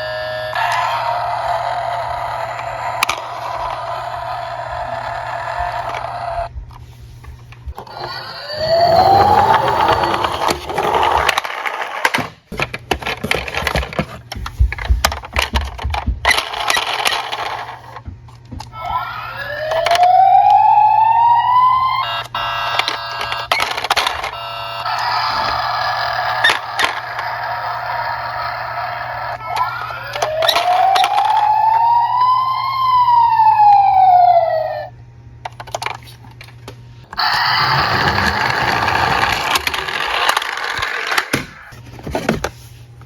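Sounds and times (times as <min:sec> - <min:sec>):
police siren wailing: 0:00.0 - 0:06.5, 0:07.8 - 0:11.2, 0:18.6 - 0:34.9, 0:37.2 - 0:40.9
toy cars clattering: 0:07.8 - 0:14.2, 0:14.8 - 0:18.0, 0:22.0 - 0:31.7, 0:35.4 - 0:36.5, 0:37.2 - 0:41.8.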